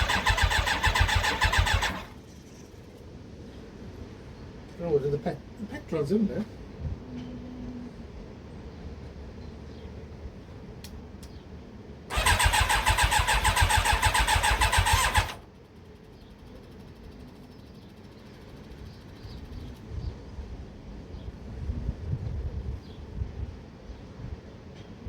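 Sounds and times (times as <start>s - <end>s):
engine cranking on starter: 0.0s - 2.3s, 12.1s - 15.5s.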